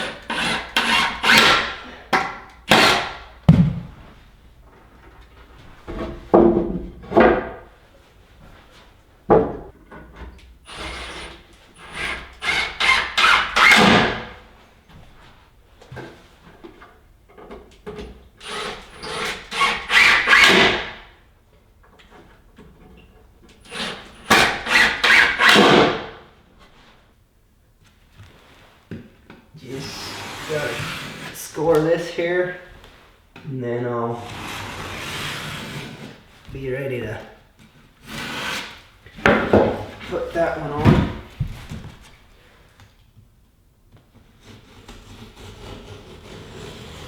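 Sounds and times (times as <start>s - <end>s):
knocks on wooden boards: 3.5s - 3.9s, 6.0s - 7.7s, 9.3s - 9.7s, 39.2s - 39.9s.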